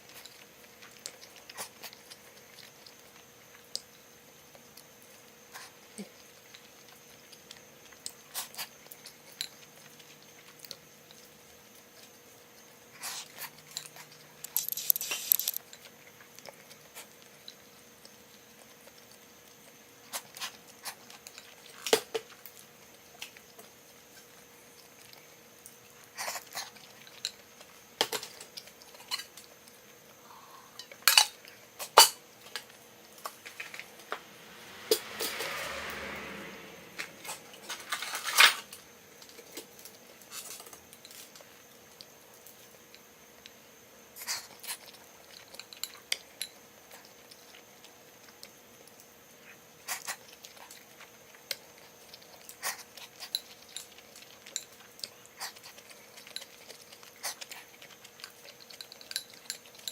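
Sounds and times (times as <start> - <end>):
tableware clicking and clinking: 37.6 - 38.8.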